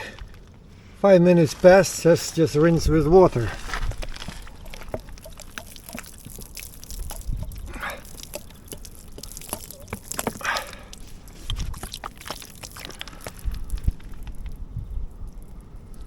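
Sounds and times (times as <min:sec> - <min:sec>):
water splashing and dripping: 0:03.6 - 0:16.0.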